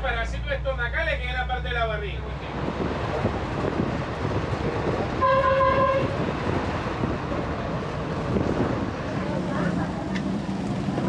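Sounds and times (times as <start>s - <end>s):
vehicle rattling road noise: 0.0s - 11.0s
horn honk: 5.2s - 6.2s.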